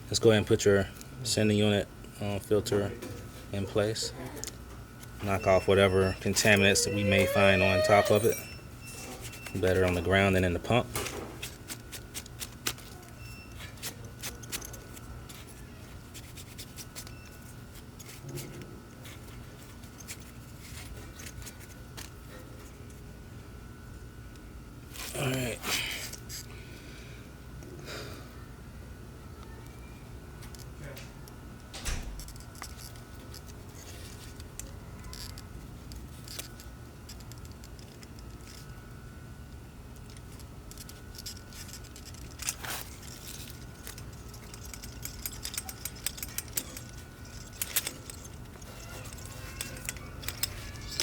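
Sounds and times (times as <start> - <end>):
steady low hum: 0.0 - 51.0
small parts clicking and tapping: 9.0 - 22.2, 30.4 - 38.9, 39.5 - 51.0.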